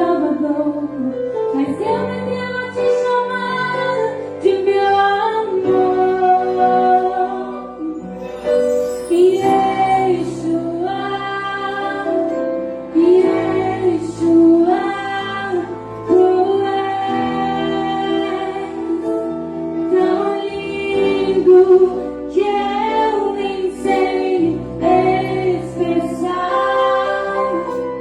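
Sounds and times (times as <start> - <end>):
woman singing: 0.0 - 28.0
orchestra playing: 6.5 - 28.0.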